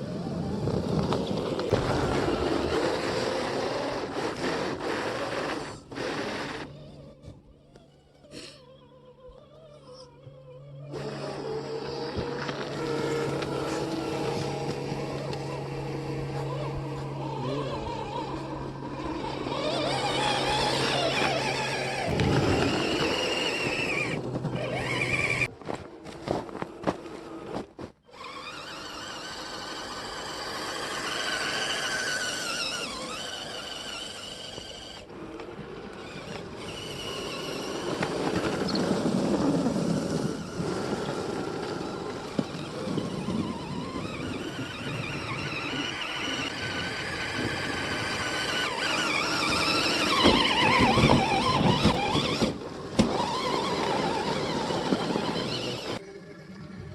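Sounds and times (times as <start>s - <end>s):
electric motors whining: 0.0s - 56.9s.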